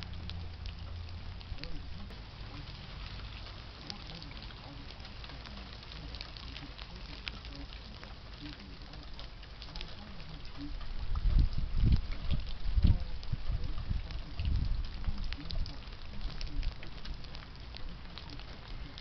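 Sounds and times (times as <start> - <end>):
light rain pattering: 0.0 - 19.0
low rumble: 0.0 - 19.0
water drips ticking: 0.0 - 19.0
low buffeting thumps: 8.1 - 19.0.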